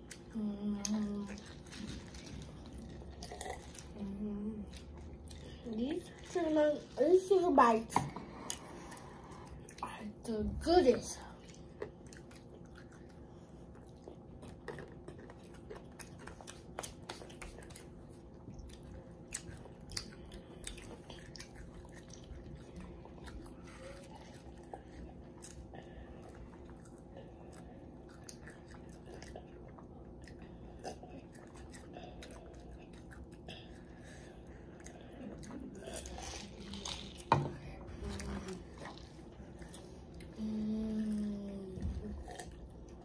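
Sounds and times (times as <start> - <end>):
children chewing food: 0.0 - 43.0
faint steady hum: 0.0 - 43.0.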